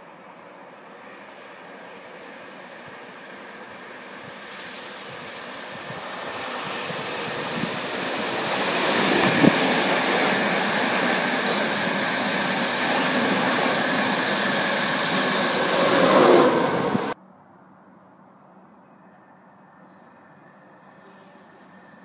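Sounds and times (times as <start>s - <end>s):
train wheels rushing on rails: 0.5s - 17.2s.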